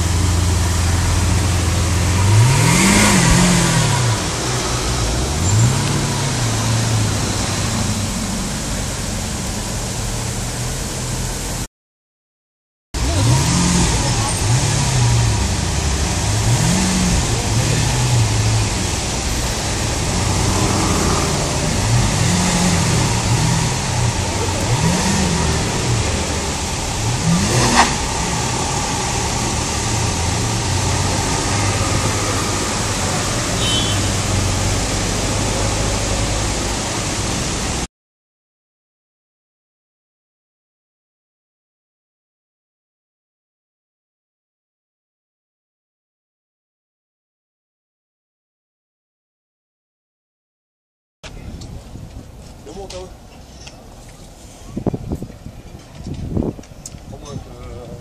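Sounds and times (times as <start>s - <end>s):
sports car engine revving: 0.0s - 10.5s, 13.0s - 37.9s.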